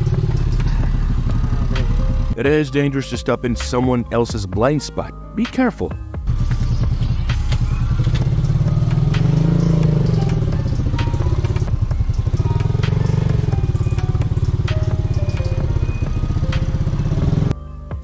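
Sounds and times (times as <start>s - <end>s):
motorcycle engine revving: 0.0s - 2.4s, 6.2s - 17.6s.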